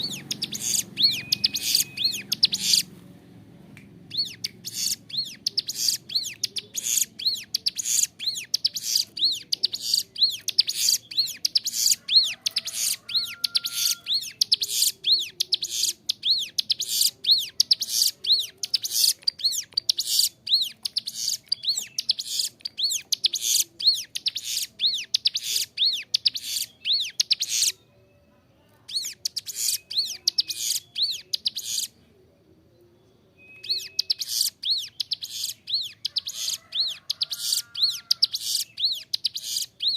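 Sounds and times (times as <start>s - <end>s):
bird singing high chirps: 0.0s - 2.9s, 4.1s - 32.1s, 32.8s - 39.9s.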